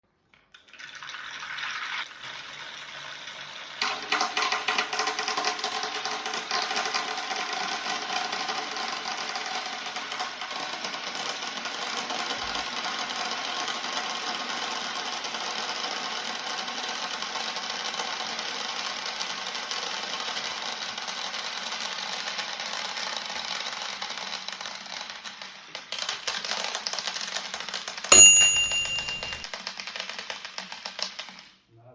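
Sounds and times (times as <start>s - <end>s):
brief ringing tone: 28.1s - 29.5s.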